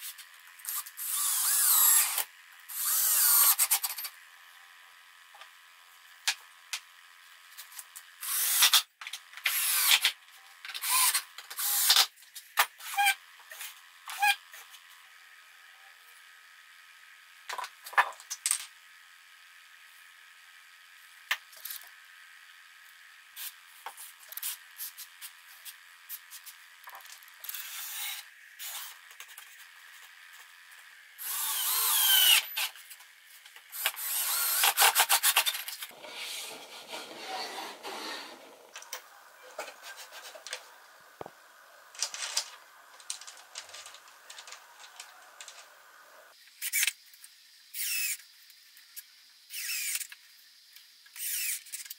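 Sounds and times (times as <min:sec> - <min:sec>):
cordless drill running: 0:00.6 - 0:03.9, 0:08.2 - 0:08.8, 0:09.4 - 0:10.1, 0:10.8 - 0:12.0, 0:27.5 - 0:29.0, 0:31.2 - 0:32.7, 0:33.7 - 0:38.8, 0:49.5 - 0:50.0, 0:51.2 - 0:51.6
wooden pieces knocking and clicking: 0:39.6 - 0:46.2.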